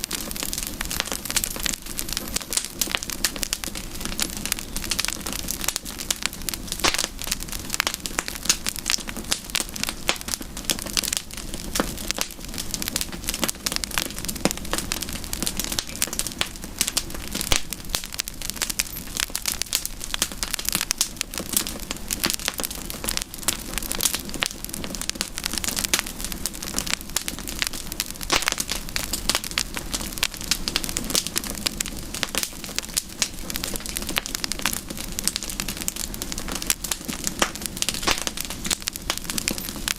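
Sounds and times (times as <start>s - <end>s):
campfire crackling and popping: 0.0s - 39.9s
hiss of flames: 0.1s - 39.9s.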